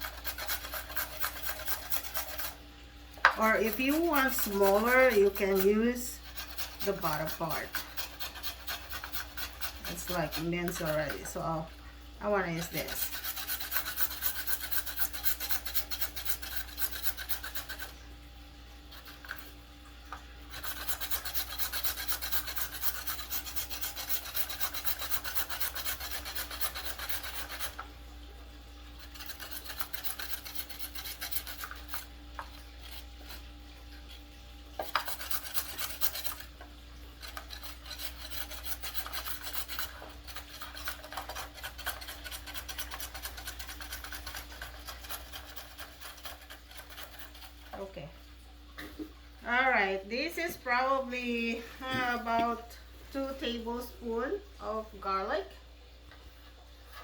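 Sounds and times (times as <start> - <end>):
food scraping on grater: 0.0 - 2.6, 3.3 - 11.6, 12.2 - 18.0, 18.9 - 19.5, 20.5 - 27.9, 29.0 - 33.5, 34.7 - 47.9.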